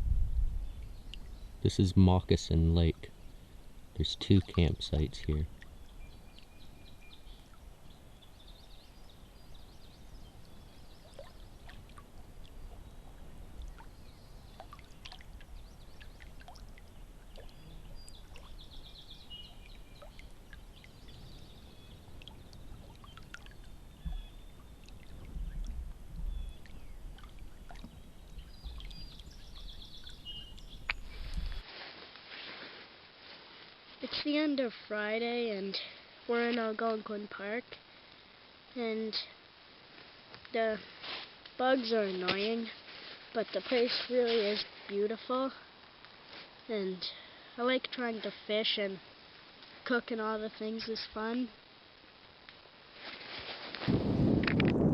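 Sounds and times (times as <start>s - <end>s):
water dripping: 0.7s - 1.4s, 3.9s - 8.0s, 9.5s - 31.6s.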